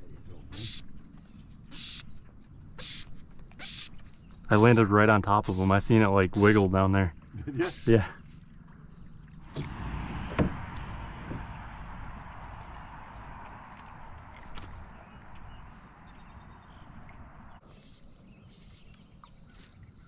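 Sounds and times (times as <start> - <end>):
insects droning: 0.0 - 20.0
sharp knock: 9.5 - 11.5.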